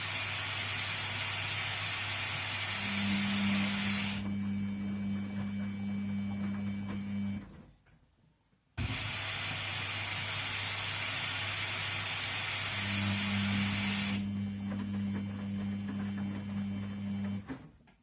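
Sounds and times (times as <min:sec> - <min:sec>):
water hissing into washing machine: 0:00.0 - 0:04.4, 0:08.8 - 0:17.4.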